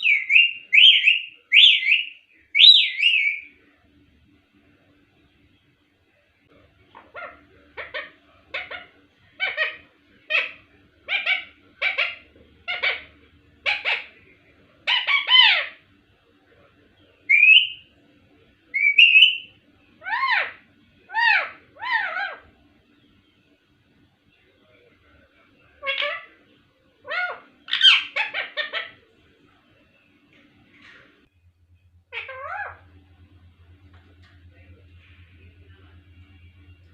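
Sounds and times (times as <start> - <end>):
parrot calling: 0.0 - 3.6, 6.9 - 15.8, 17.3 - 17.8, 18.7 - 22.6, 25.8 - 26.4, 27.0 - 29.0, 32.1 - 33.0.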